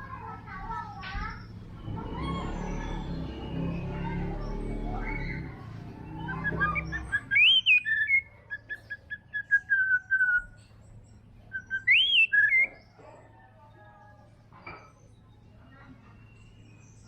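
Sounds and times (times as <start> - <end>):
bird whistling: 2.2 - 10.6, 11.5 - 12.8.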